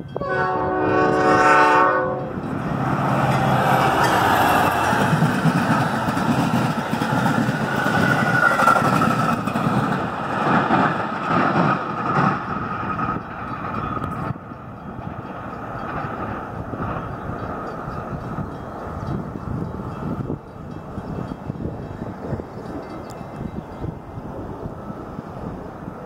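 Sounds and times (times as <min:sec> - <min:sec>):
train rolling past on rails: 0:00.0 - 0:26.0.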